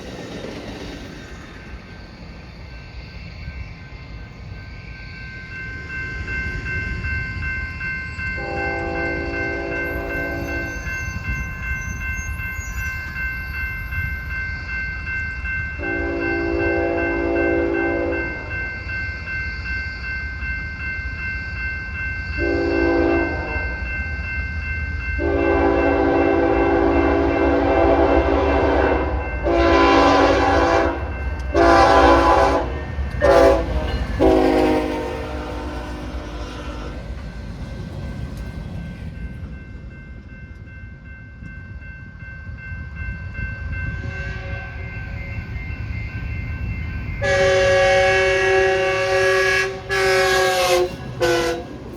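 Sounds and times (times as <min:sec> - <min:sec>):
passing train rumbling: 0:00.0 - 0:51.9
locomotive air horn blasts: 0:08.4 - 0:10.6, 0:15.8 - 0:18.2, 0:22.4 - 0:23.6, 0:25.2 - 0:37.0, 0:47.2 - 0:51.7.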